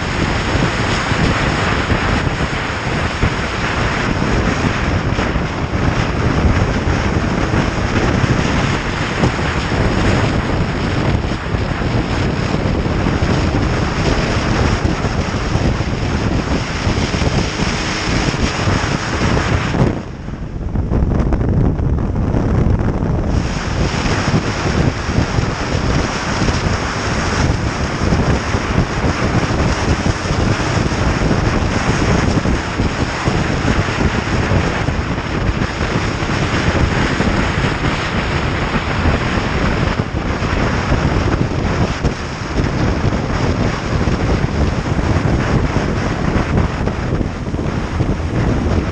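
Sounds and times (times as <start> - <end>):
road noise: 0.0 - 48.9
wind rush over microphone: 0.0 - 48.9.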